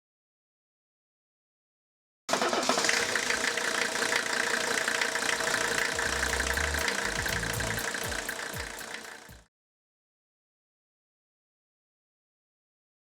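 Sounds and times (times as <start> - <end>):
engine running: 2.3 - 9.5
fast ticking: 2.4 - 9.4.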